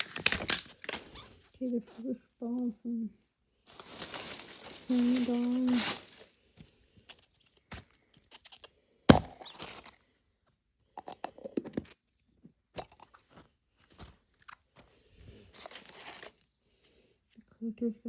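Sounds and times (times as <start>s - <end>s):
plastic capsule snapping: 0.0s - 1.0s
plastic and paper crinkling: 0.0s - 2.0s, 3.7s - 8.7s, 13.3s - 16.5s.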